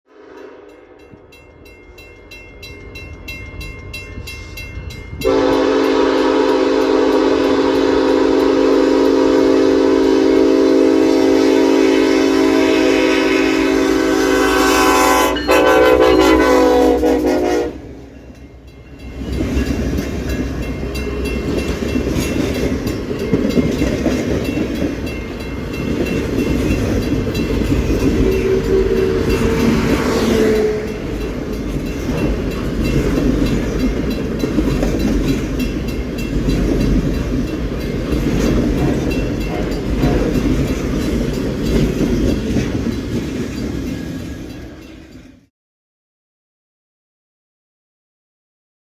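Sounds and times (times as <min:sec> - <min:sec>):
loud train air horn: 0:00.1 - 0:01.0, 0:05.2 - 0:18.0, 0:28.0 - 0:31.2
rattling train cars: 0:01.0 - 0:45.5
locomotive engine rumble: 0:15.8 - 0:45.2
wheels on rails: 0:18.1 - 0:45.4.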